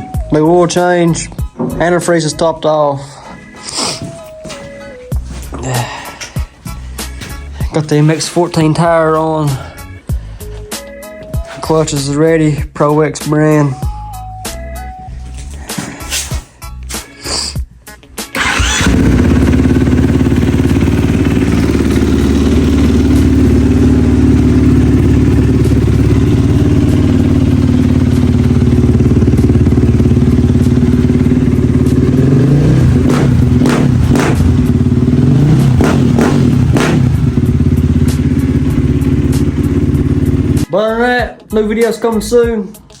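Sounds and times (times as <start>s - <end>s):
dirt bike engine idling: 18.4s - 40.7s
dirt bike engine revving: 18.4s - 40.7s.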